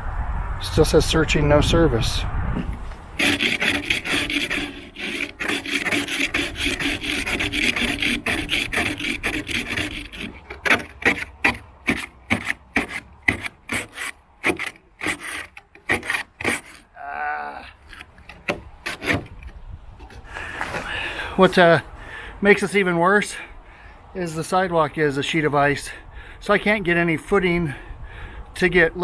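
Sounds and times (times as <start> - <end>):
ice scraper scraping window glass: 2.6 - 17.0, 17.8 - 21.8.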